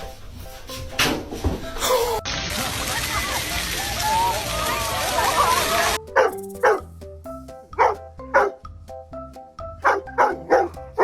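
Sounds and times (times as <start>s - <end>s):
bouncy background music: 0.0s - 11.0s
dog barking: 6.1s - 6.9s, 7.8s - 8.6s, 9.8s - 11.0s.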